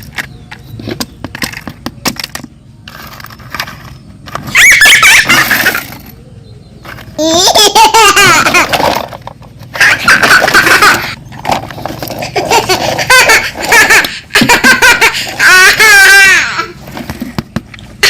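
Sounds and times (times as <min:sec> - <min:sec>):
high-pitched wavering laughter: 0:04.5 - 0:06.1, 0:07.2 - 0:09.1, 0:09.7 - 0:11.3, 0:12.1 - 0:16.8.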